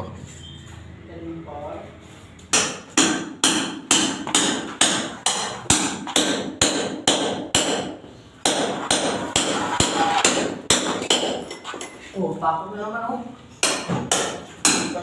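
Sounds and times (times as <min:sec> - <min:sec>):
hammer blows ringing: 0:02.5 - 0:11.5.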